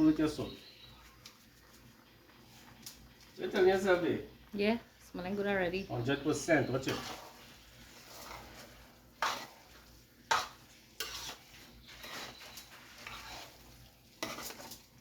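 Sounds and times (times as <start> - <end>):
spoon stirring rice in pot: 0.0 - 5.0, 6.0 - 15.0.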